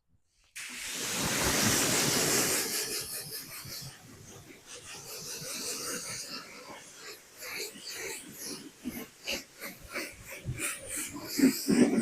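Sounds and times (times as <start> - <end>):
water spraying on truck body: 0.6 - 3.4.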